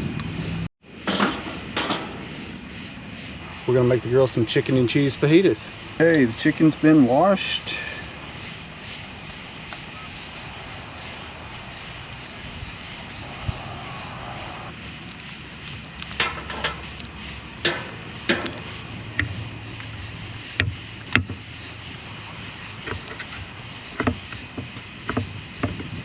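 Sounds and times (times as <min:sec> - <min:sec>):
steady hiss: 0:00.0 - 0:26.0
utensils knocking on cookware: 0:17.6 - 0:18.8.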